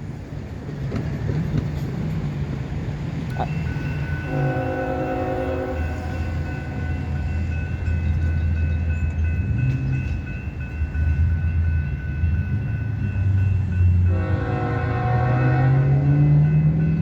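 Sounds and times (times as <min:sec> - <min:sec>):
diesel locomotive engine rumble: 0:00.0 - 0:17.0
locomotive air horn: 0:04.0 - 0:06.8, 0:14.1 - 0:16.3.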